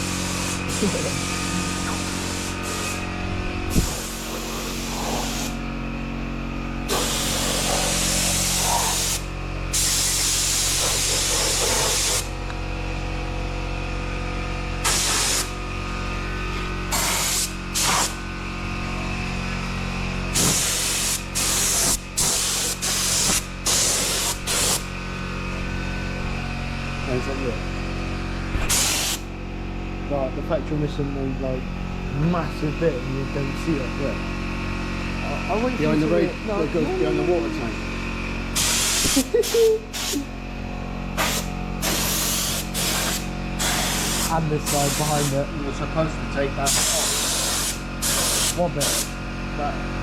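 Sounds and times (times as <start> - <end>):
paint spraying hiss: 0.0 - 3.1, 3.7 - 5.6, 6.8 - 12.3, 14.8 - 15.6, 16.9 - 18.2, 20.3 - 24.9, 28.6 - 29.3, 38.5 - 40.3, 41.2 - 45.5, 46.7 - 49.1.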